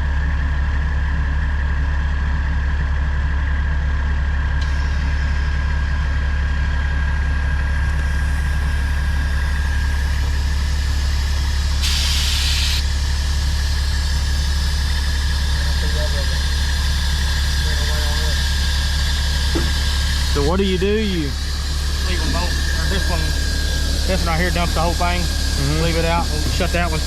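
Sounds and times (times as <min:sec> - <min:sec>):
truck engine idling: 0:00.0 - 0:27.0
thin steady whine: 0:07.6 - 0:27.0
short burst of hissing: 0:11.8 - 0:12.8.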